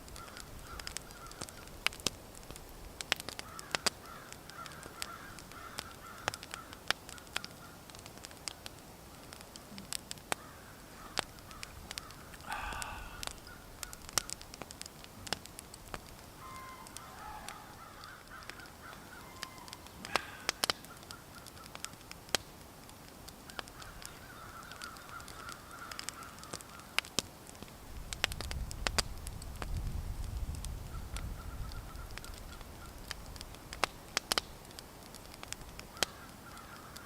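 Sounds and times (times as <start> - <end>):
sharp clicks and crackles: 0.0 - 37.0
birds calling: 3.4 - 7.8, 10.3 - 14.4, 16.2 - 21.9, 23.6 - 27.0.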